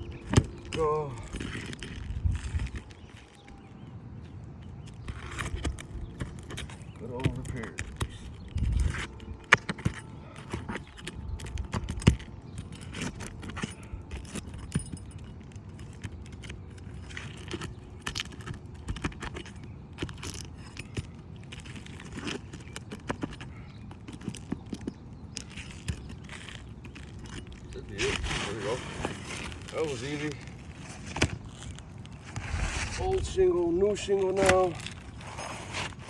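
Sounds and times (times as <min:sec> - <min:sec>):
hand tools clinking on shingles: 0:00.0 - 0:03.8, 0:04.6 - 0:36.0.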